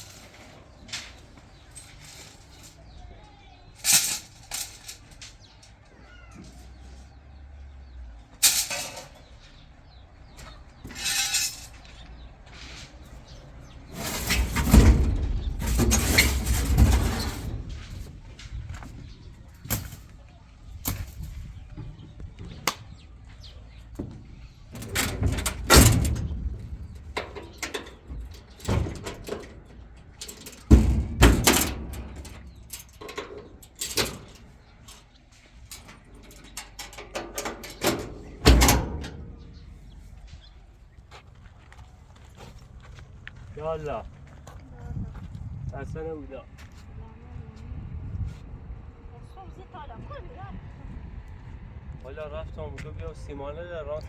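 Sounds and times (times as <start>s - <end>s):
heavy clattering and rumbling: 0.0s - 45.5s
knocks and bangs: 23.9s - 33.4s.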